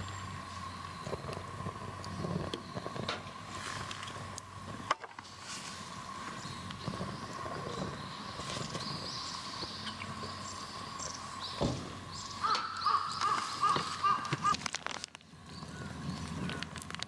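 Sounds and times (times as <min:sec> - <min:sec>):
high arched bird chirps: 0:06.3 - 0:14.6
lower bird call notes: 0:06.3 - 0:14.6.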